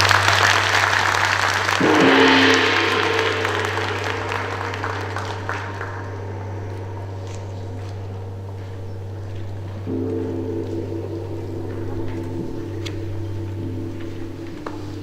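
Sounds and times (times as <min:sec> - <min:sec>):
audience applause: 0:00.0 - 0:06.8
steady low hum: 0:01.6 - 0:15.0.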